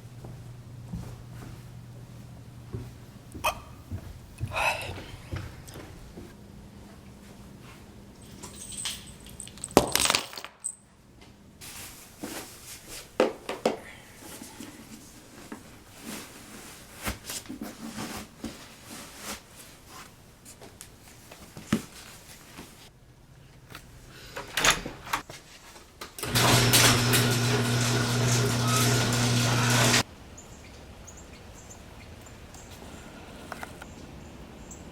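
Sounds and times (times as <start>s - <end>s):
loud steady hum with buzz: 26.2s - 30.0s.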